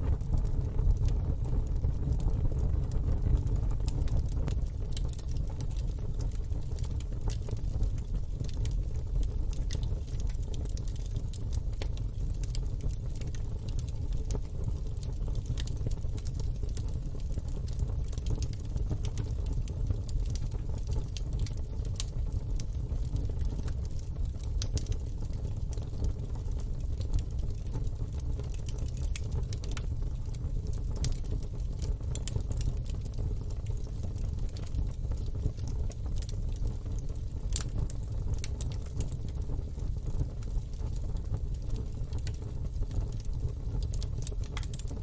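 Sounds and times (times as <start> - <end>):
low steady rumble: 0.0 - 10.4
wood fire crackling: 0.0 - 45.0.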